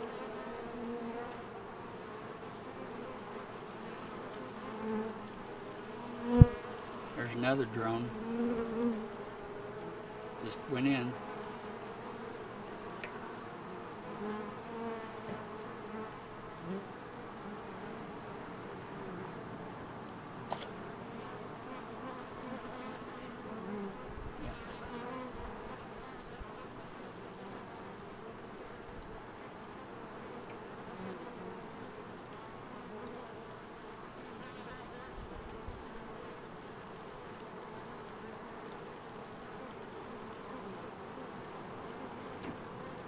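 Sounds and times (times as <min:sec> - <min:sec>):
bees buzzing: 0:00.0 - 0:29.0
sharp click: 0:20.5 - 0:20.8.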